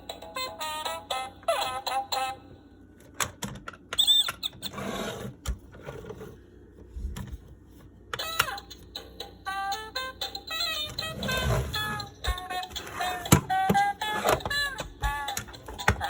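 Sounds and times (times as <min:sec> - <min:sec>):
tinny toy tune: 0:08.2 - 0:16.0.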